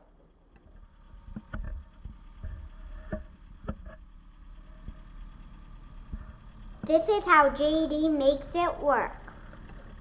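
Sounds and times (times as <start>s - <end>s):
excavator engine running: 0.0s - 10.0s
sharp clicks and knocks: 0.5s - 4.1s.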